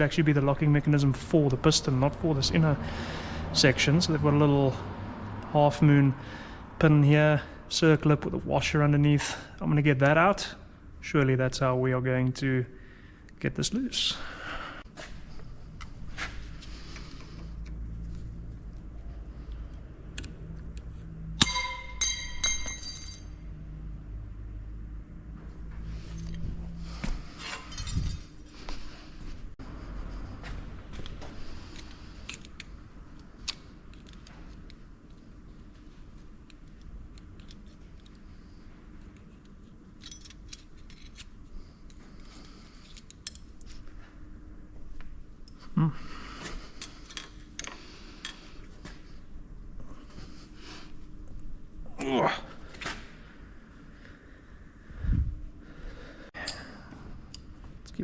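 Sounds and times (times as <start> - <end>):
low steady hum: 9.3 - 58.0
metallic strike on steel: 21.4 - 23.3
light metal clinks: 21.4 - 23.4, 27.4 - 28.4.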